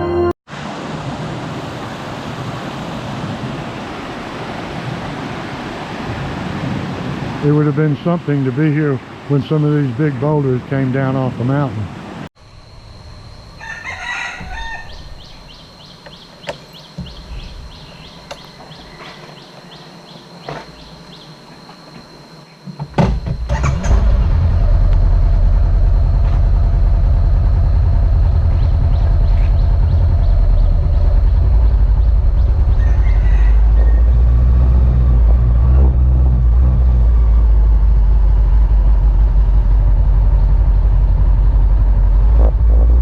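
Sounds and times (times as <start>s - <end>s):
motorcycle rumbling: 12.4s - 43.0s
steady high whine: 12.4s - 43.0s
rooster crowing: 13.5s - 15.9s, 32.6s - 34.3s.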